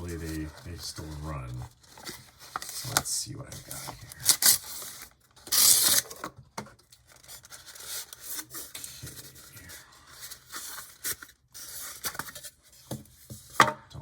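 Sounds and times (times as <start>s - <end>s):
packaging rustle: 0.0s - 13.5s
plastic rubbing and scraping: 0.0s - 13.7s.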